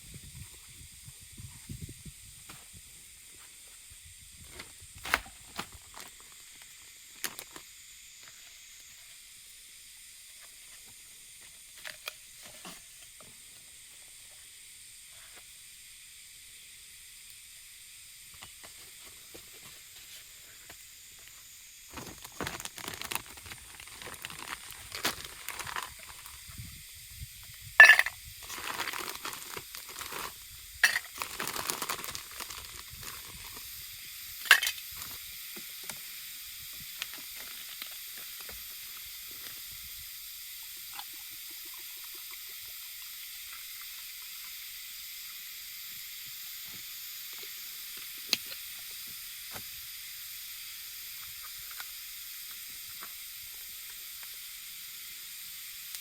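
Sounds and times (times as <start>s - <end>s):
food sizzling in a pan: 5.6s - 56.0s
cookware and utensils clattering: 27.8s - 28.2s.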